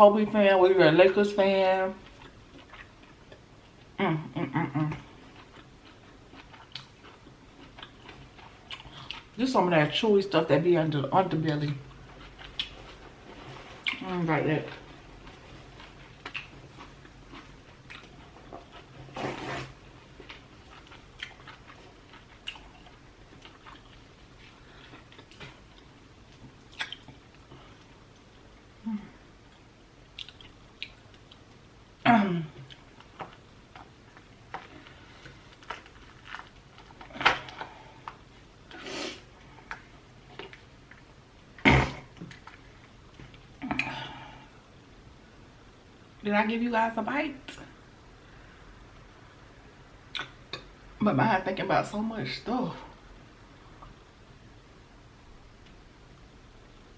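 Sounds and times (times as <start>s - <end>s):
chewing with wet mouth clicks: 2.0s - 3.8s, 5.2s - 9.3s, 15.3s - 18.9s, 20.2s - 28.3s, 30.1s - 31.6s, 50.1s - 50.7s.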